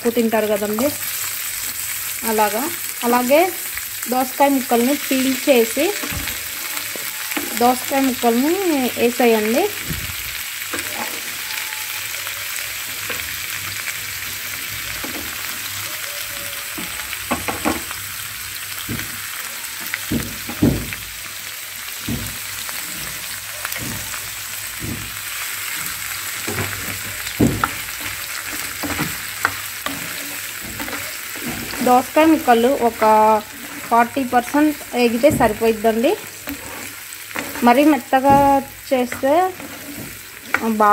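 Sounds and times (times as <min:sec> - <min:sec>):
vegetables sizzling in oil: 0:00.0 - 0:40.9
stirring knocks and scrapes: 0:05.0 - 0:08.3, 0:18.8 - 0:19.2, 0:21.9 - 0:40.9.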